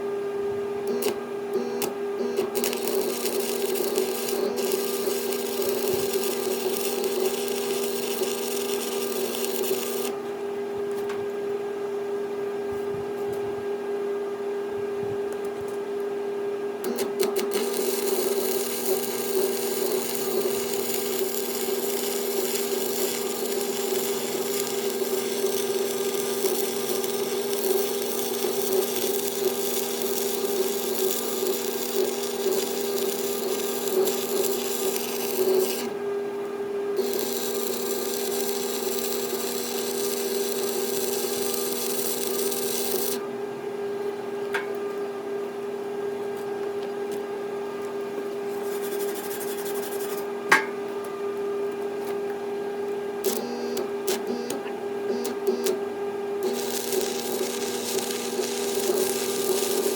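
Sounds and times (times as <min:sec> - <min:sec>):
grinder rasping on steel: 0:17.5 - 0:35.9, 0:37.0 - 0:43.2, 0:56.4 - 0:59.9
angle grinder motor whine: 0:53.3 - 0:55.7.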